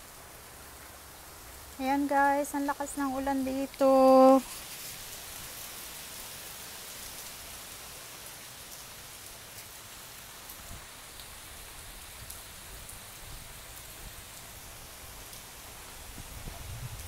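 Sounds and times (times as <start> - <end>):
heavy rain on pool and concrete: 0.0 - 17.0.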